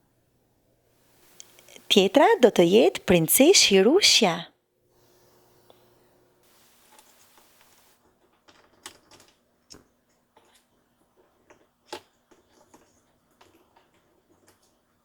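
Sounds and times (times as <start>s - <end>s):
soft rustle: 6.5s - 8.0s.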